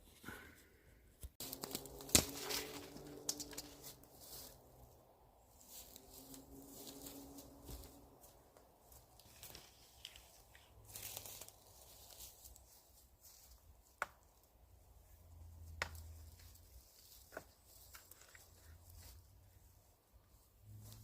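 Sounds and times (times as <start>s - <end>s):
sharp wood cracks: 1.4s - 4.1s
rustling of dead branches: 1.4s - 21.0s.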